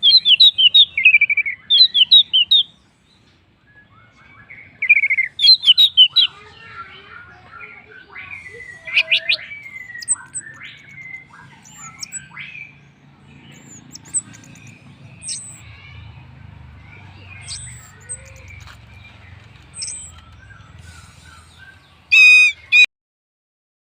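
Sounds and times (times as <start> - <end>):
thrush singing high whistles: 22.1 - 22.9.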